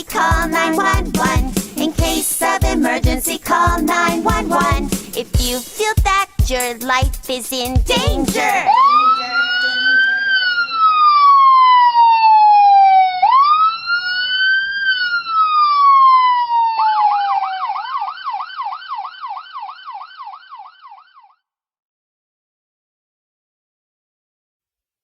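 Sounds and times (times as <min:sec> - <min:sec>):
police siren wailing and yelping: 0:08.2 - 0:21.3.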